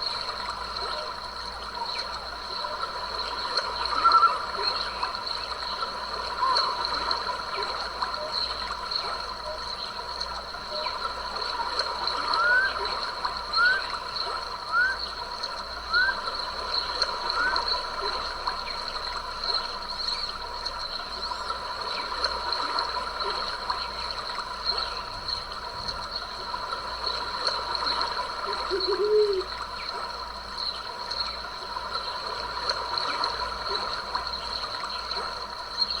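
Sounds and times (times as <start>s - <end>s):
stream trickling and splashing: 0.0s - 36.0s
chorus of calling animals: 10.7s - 18.5s, 27.1s - 30.2s
lower animal call: 13.6s - 14.0s, 28.6s - 29.5s.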